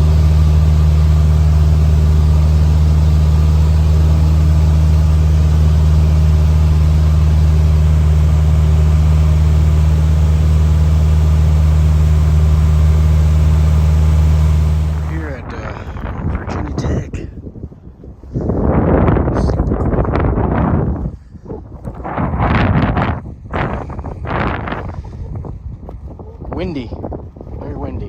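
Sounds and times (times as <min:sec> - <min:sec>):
airplane engine and propeller drone: 0:00.0 - 0:17.4.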